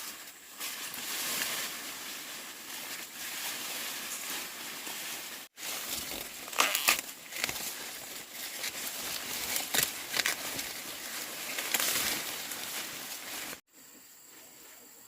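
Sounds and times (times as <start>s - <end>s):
rustling and crackling: 0.0s - 13.6s.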